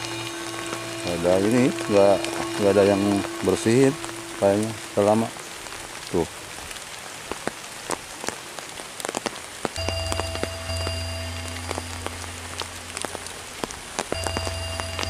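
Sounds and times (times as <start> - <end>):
steady low hum: 0.0 - 6.1, 9.8 - 15.0
rain falling: 0.0 - 15.0.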